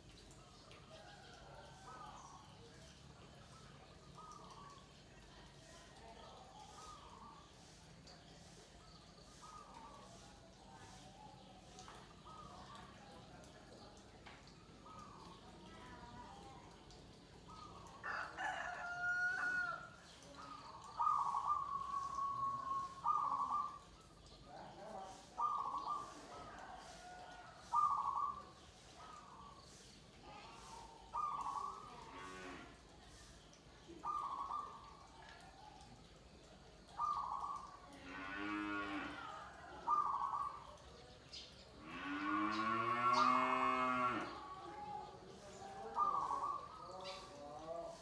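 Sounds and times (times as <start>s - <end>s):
birds calling: 20.4s - 29.8s, 30.4s - 32.0s, 34.0s - 35.9s, 36.8s - 37.8s, 39.9s - 48.0s
dove cooing: 20.9s - 23.9s, 25.3s - 29.4s, 31.1s - 32.0s, 39.1s - 40.7s, 45.9s - 47.3s
cow mooing: 38.0s - 39.2s, 41.8s - 44.3s.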